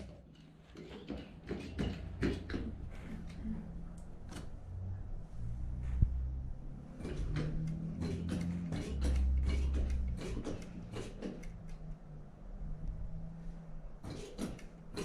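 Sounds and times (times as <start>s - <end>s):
low hum: 3.3s - 14.0s.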